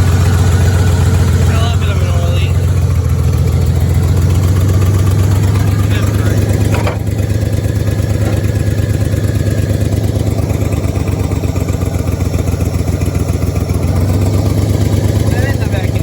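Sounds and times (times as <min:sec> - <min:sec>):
pickup engine idling: 0:00.0 - 0:16.0.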